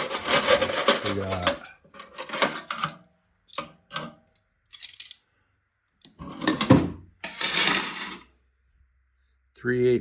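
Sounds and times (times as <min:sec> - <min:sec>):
wrenches clinking and rattling: 0:00.0 - 0:05.2.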